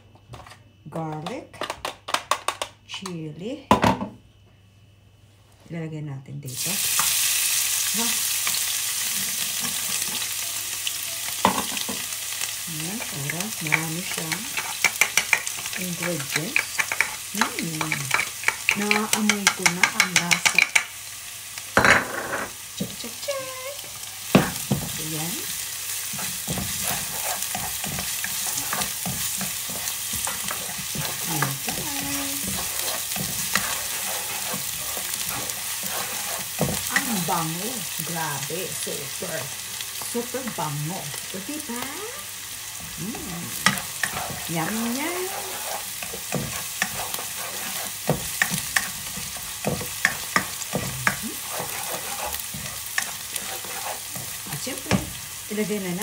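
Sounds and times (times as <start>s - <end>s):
food sizzling in hot oil: 6.5s - 56.0s
ladle scraping wok: 26.1s - 37.0s, 43.6s - 54.9s.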